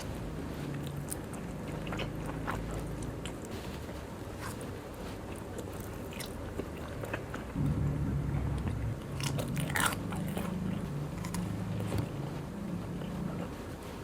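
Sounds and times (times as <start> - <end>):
chewing and crunching food: 0.0 - 7.6, 9.0 - 14.0
low humming tone: 7.6 - 14.0.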